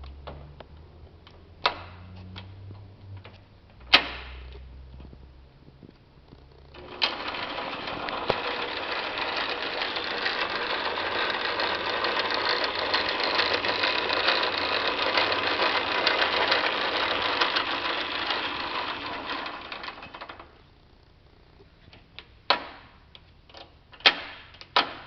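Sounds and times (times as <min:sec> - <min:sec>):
metal lathe rattling: 0:06.8 - 0:20.5.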